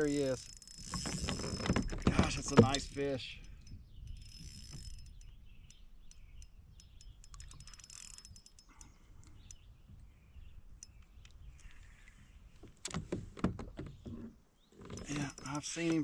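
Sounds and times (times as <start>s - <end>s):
fishing reel clicking: 0.0s - 9.6s, 15.0s - 16.0s.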